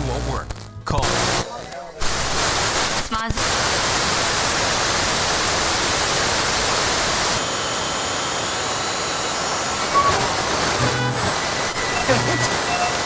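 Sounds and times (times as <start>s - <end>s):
faint weak signal tones: 0.0s - 3.6s, 9.7s - 13.0s
television static hiss: 0.0s - 7.8s, 8.4s - 13.0s.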